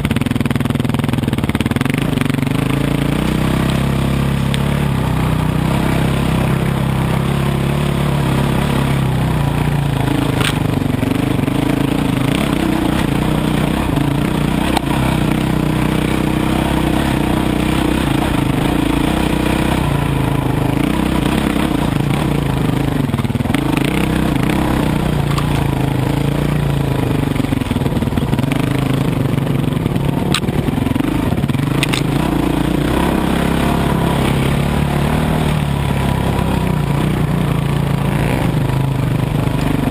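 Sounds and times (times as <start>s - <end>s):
dirt bike engine revving: 0.0s - 39.9s
sharp clicks: 30.3s - 30.5s, 31.8s - 32.1s.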